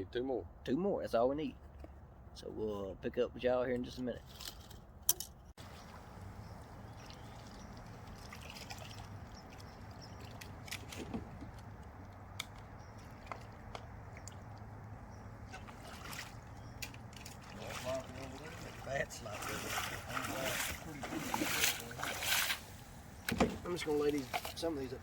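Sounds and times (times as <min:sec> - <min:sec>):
water sloshing and trickling: 0:05.6 - 0:25.0.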